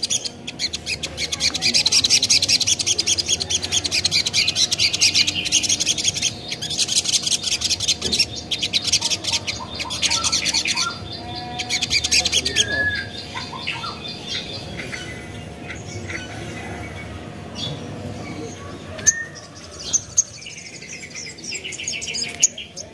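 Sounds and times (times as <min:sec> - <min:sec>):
bird sharp high ticking calls: 0:00.0 - 0:17.8.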